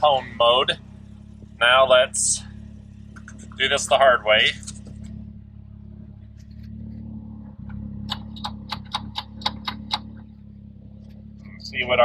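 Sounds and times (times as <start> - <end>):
engine idling with misfires: 0.0 - 12.0
rapid sharp clicks: 6.2 - 10.3.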